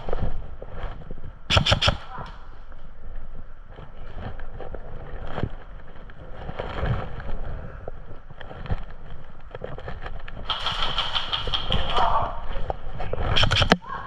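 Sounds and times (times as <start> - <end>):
wind rumble on microphone: 0.0 - 14.0
sharp clicks and knocks: 1.5 - 2.4, 8.4 - 13.8.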